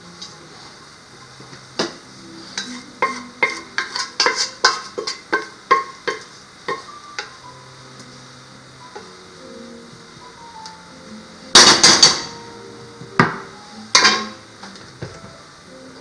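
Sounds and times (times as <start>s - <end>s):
soft background music: 0.0s - 16.0s
metal utensils clinking on cookware: 2.6s - 7.3s, 14.0s - 14.4s.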